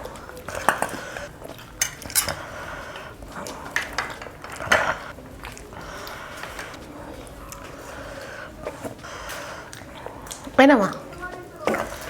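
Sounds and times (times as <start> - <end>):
tableware clinking and knocking: 0.5 - 2.5.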